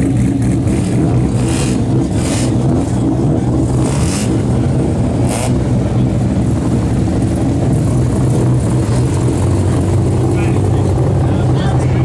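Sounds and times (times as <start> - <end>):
car engines driving slowly past: 0.0 - 12.0.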